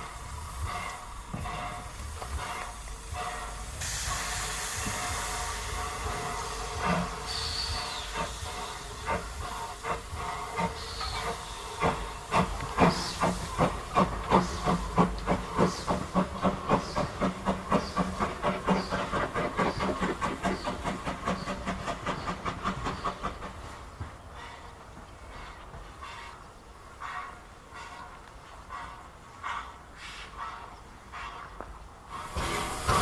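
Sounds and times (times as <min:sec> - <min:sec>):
steam hissing: 0:00.0 - 0:24.6, 0:28.7 - 0:33.0
steam locomotive exhaust beats: 0:00.0 - 0:33.0.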